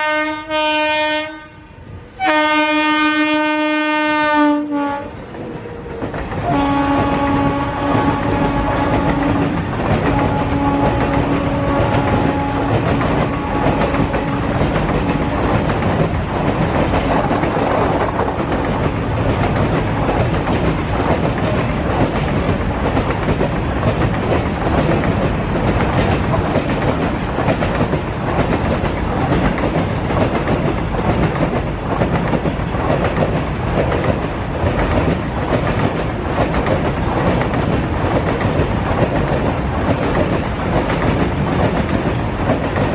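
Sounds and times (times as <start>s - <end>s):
locomotive horn: 0.0s - 5.2s, 6.4s - 15.5s
train wheels clattering over rails: 4.8s - 42.9s.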